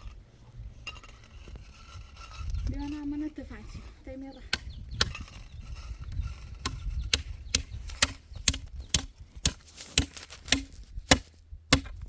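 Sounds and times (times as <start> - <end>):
chopping blows on wood: 6.6 - 12.0.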